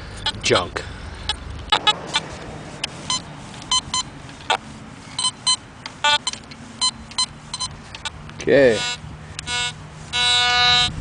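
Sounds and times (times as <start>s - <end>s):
metal detector short beeps: 1.7s - 2.2s, 3.1s - 8.1s, 8.8s - 10.9s.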